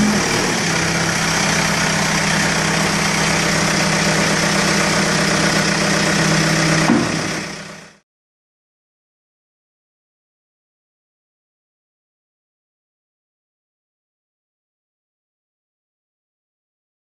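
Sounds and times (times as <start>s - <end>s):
diesel engine idling: 0.0s - 8.0s.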